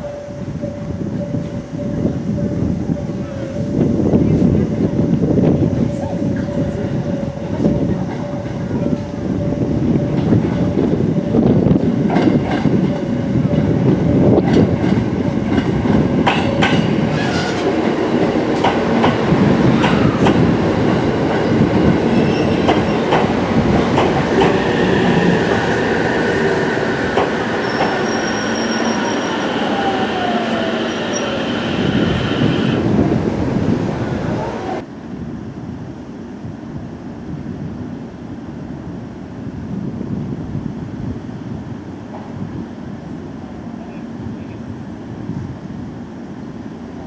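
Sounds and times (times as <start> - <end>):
train wheels clicking over rail joints: 10.0 - 32.9
squealing brakes: 22.2 - 23.0, 27.3 - 32.8
train motor whine: 22.2 - 34.8.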